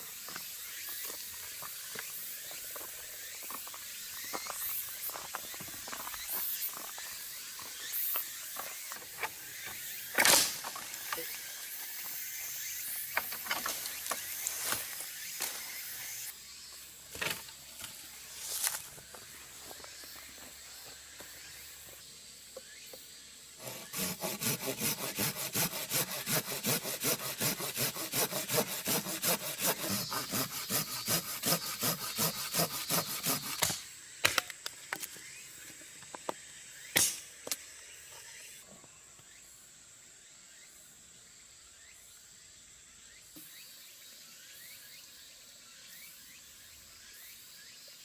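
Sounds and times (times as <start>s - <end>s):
hand saw cutting wood: 23.6s - 33.8s.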